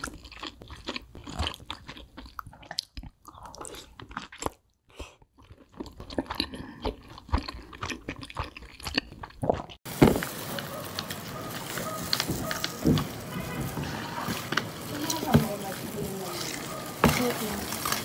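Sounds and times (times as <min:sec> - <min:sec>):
chewing and crunching chicken: 0:00.0 - 0:18.0
loud thump: 0:09.9 - 0:10.3.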